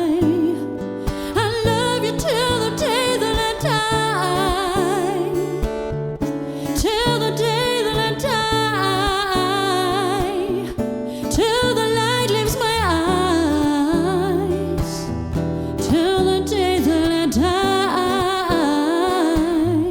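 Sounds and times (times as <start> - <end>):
woman singing with vibrato: 0.0 - 6.0, 6.6 - 19.9
guitar accompaniment: 0.0 - 19.9.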